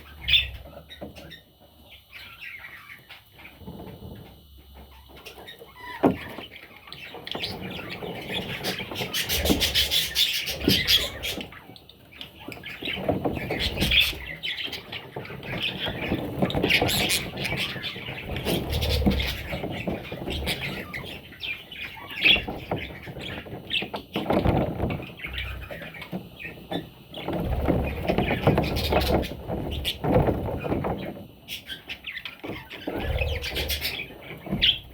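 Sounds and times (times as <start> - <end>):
budgies chirping and squawking: 0.0 - 34.9.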